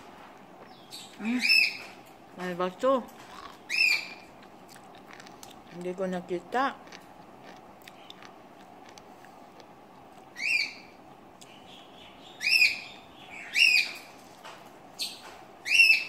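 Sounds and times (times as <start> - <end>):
bird chirping: 0.6 - 2.0, 3.3 - 4.3, 10.4 - 14.2, 15.0 - 16.0.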